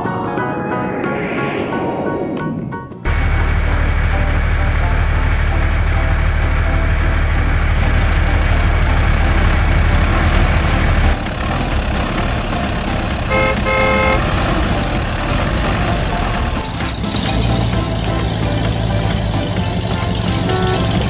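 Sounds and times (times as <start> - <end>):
vehicle engine rumble: 3.0 - 21.0
short horn toots: 13.3 - 14.3, 20.4 - 21.0.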